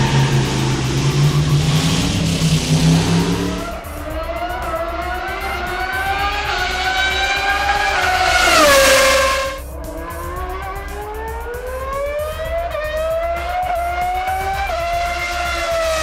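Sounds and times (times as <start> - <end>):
car passing by: 0.0 - 4.0, 5.3 - 9.6
light background music: 0.0 - 16.0
race car engines revving: 0.0 - 16.0.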